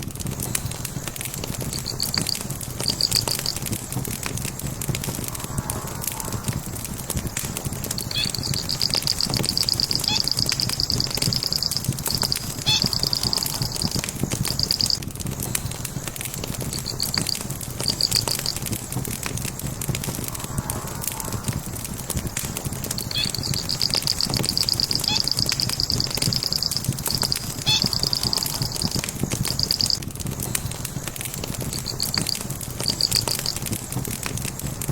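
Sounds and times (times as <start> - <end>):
burning logs crackling: 0.0 - 34.9
high rapid chirping trill: 1.7 - 3.6, 7.9 - 15.0, 22.9 - 30.0.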